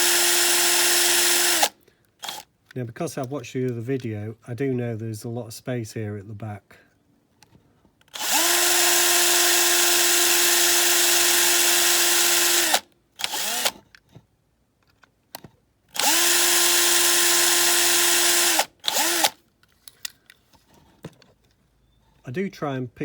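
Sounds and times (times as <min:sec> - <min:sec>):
electric drill running: 0:00.0 - 0:02.4, 0:08.1 - 0:13.8, 0:16.0 - 0:19.4.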